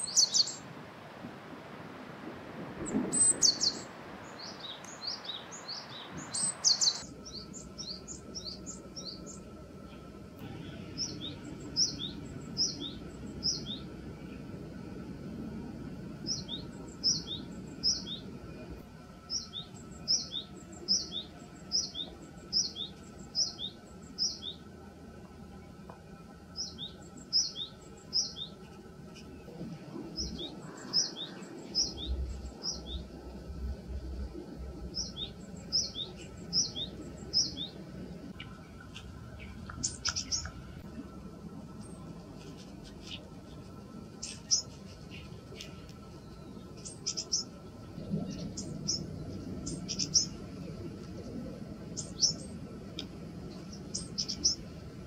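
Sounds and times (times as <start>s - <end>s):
small songbird singing: 0.0s - 0.6s, 2.8s - 14.4s, 16.2s - 18.3s, 19.2s - 24.6s, 26.6s - 29.4s, 30.1s - 33.2s, 34.9s - 37.8s, 39.4s - 40.6s, 44.2s - 50.5s, 51.9s - 54.6s
faint steady background hum: 0.0s - 55.0s.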